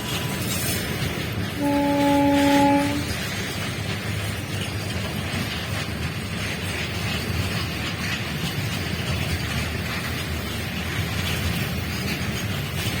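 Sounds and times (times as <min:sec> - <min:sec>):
train horn: 0:01.5 - 0:03.2.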